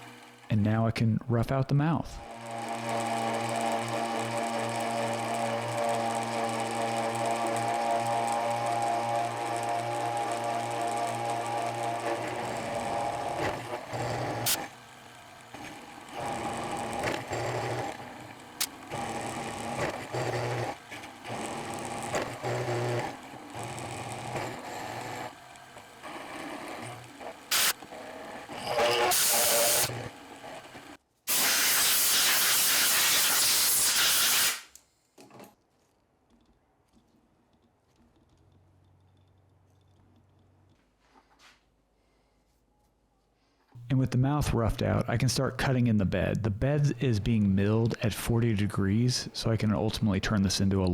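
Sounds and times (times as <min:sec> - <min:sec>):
milling machine cutting steel: 0:00.0 - 0:00.5, 0:02.2 - 0:34.6.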